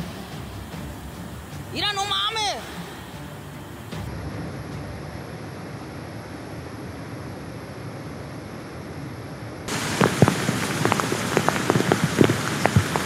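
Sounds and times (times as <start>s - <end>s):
heavy rain falling: 0.0s - 5.8s, 9.7s - 13.0s
steady rushing noise: 0.0s - 8.8s, 9.7s - 13.0s.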